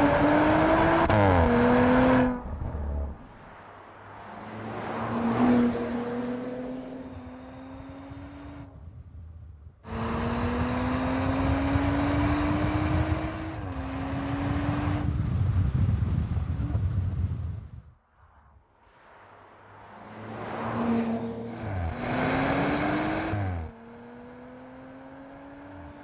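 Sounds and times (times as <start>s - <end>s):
car engine accelerating: 0.0s - 3.3s, 4.2s - 8.8s, 9.8s - 15.4s, 19.8s - 26.0s.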